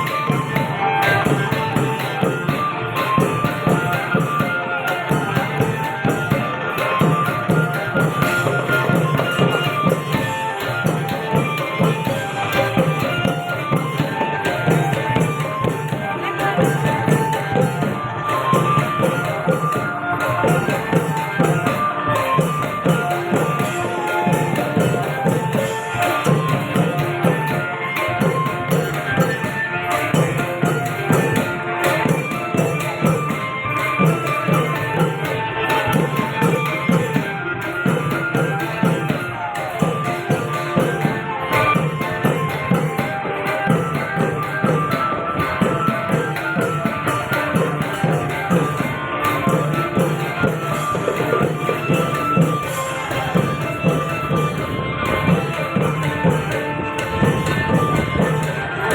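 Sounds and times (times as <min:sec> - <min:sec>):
long drums beating: 0:00.0 - 0:58.9
small hand cymbals: 0:00.0 - 0:58.9.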